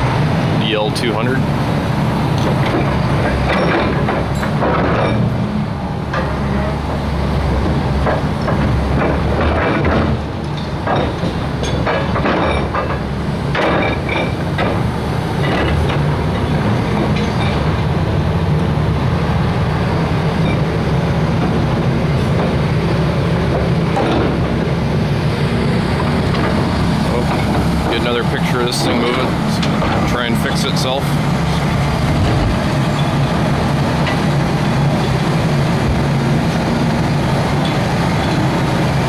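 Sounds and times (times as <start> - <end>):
excavator diesel engine running: 0.0 - 39.0
metal clanks and squeals: 2.4 - 5.4, 8.0 - 17.8, 19.9 - 22.8, 26.0 - 33.4.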